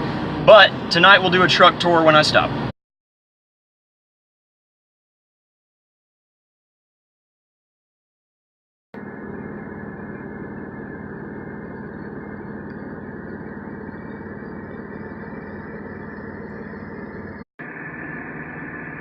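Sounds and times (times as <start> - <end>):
diesel truck engine from inside cab: 0.0 - 2.7, 9.0 - 19.0.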